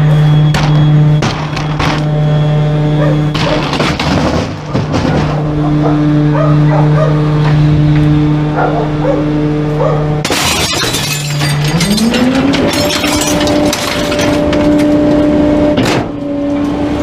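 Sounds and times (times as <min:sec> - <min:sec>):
idling truck hum: 0:00.0 - 0:10.2
dog barking: 0:03.0 - 0:03.6, 0:05.3 - 0:07.3, 0:08.6 - 0:10.1.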